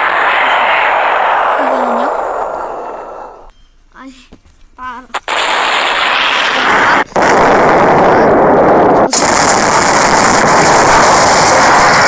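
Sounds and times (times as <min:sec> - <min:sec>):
automatic gunfire: 0:05.2 - 0:08.5, 0:09.1 - 0:12.0.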